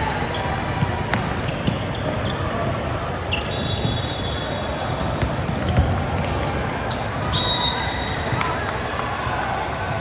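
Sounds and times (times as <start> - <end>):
murmur of crowd: 0.0 - 10.0.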